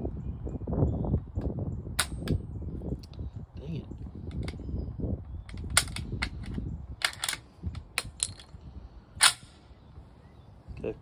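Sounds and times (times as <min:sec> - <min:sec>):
rifle metallic clicks and clacks: 0:05.5 - 0:08.5.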